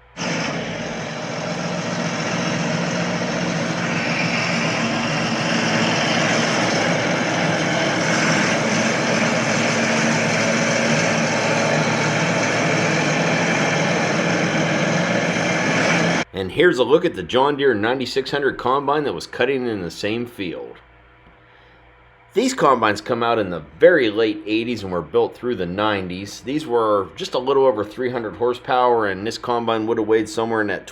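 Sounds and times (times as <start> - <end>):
heavy diesel engine running: 0.0 - 16.3.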